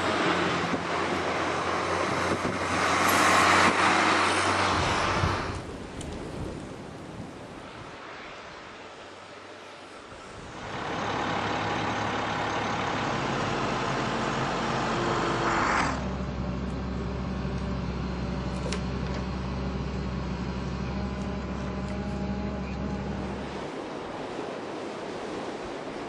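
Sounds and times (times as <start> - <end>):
truck engine humming: 10.4 - 24.5.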